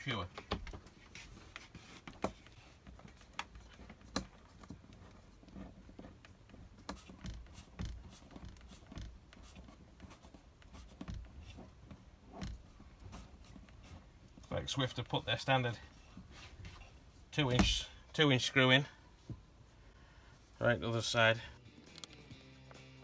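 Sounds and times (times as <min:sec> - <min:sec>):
screwdriver clicking and scratching: 0:21.8 - 0:22.3
hands handling fittings: 0:21.8 - 0:22.4.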